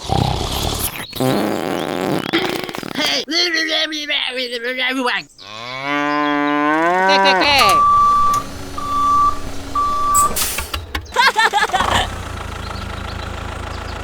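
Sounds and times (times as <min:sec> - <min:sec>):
cow mooing: 0:05.4 - 0:09.4
electronic beeps: 0:07.5 - 0:10.6.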